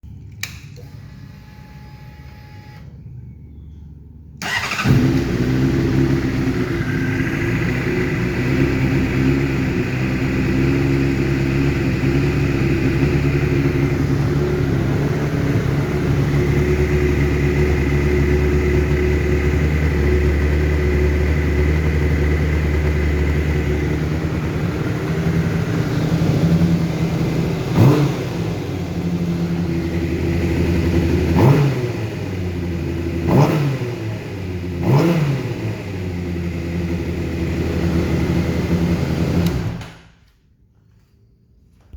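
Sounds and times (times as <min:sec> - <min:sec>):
motorcycle engine idling unevenly: 0:04.4 - 0:31.4.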